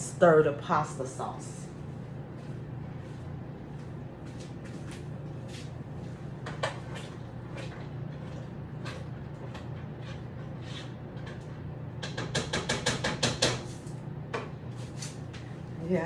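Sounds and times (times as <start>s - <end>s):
utensil scraping in a pot: 6.7s - 11.7s.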